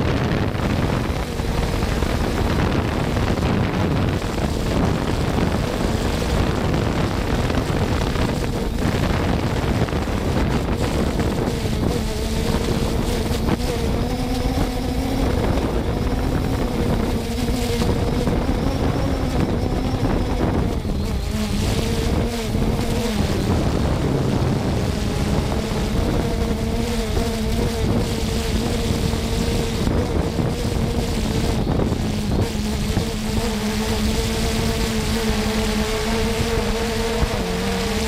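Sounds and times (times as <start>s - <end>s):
drone propellers humming: 0.0s - 38.0s
wind rushing over microphone: 0.0s - 38.0s.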